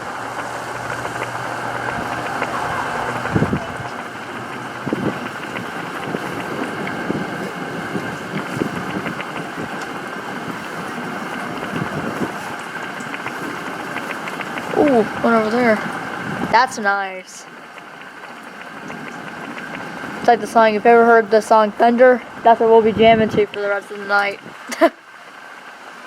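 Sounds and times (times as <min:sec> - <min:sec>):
water drips: 0:00.0 - 0:22.8
steady rain hiss: 0:00.0 - 0:26.0.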